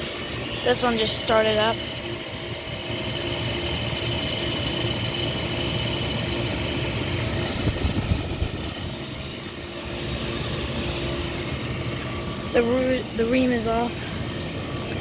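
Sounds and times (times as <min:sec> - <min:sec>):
steady high tone: 0:00.0 - 0:02.4, 0:07.0 - 0:15.0
air conditioner compressor and fan: 0:00.0 - 0:15.0.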